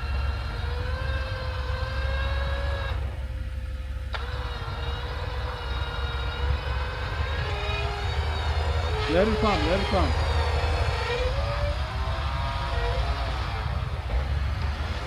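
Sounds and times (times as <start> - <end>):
car engine idling: 0.0 - 15.0
electric winch motor whining: 0.0 - 15.0.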